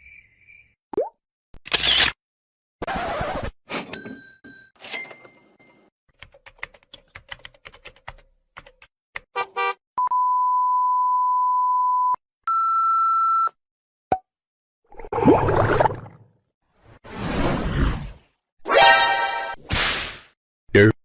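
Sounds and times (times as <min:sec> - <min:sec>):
censor bleep: 0:10.0 - 0:13.6.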